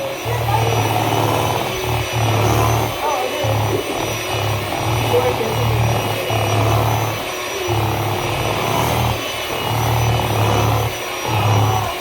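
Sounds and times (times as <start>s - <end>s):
small electric motor humming: 0.0s - 12.0s.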